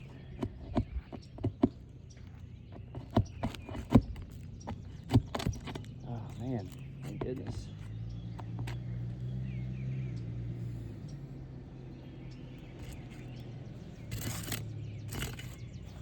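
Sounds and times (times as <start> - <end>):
scraping roof shingles: 0.0 - 8.8, 14.0 - 16.0
bird chirping: 0.0 - 16.0.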